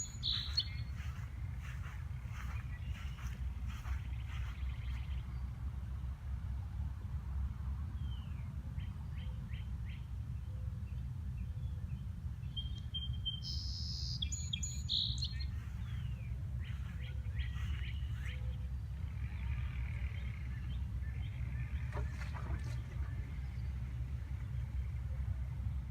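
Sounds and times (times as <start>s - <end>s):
birds chirping and singing: 0.0s - 5.3s, 12.5s - 25.3s
steady low rumble: 0.0s - 25.9s.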